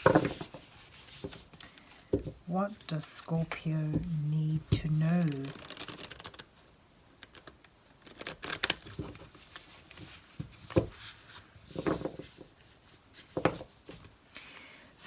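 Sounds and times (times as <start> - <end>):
cards being shuffled: 3.4 - 6.5.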